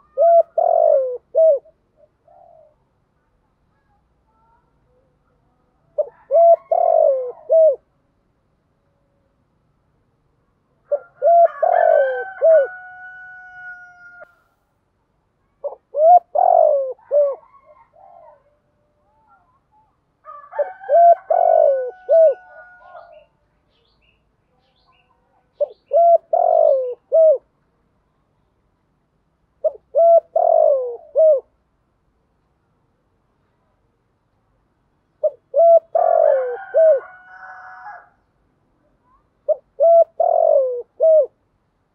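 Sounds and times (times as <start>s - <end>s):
dove cooing: 0.0s - 2.9s, 5.8s - 7.9s, 10.9s - 14.2s, 15.6s - 19.5s, 20.5s - 23.3s, 25.5s - 27.5s, 29.6s - 31.6s, 35.2s - 38.2s, 39.1s - 41.4s.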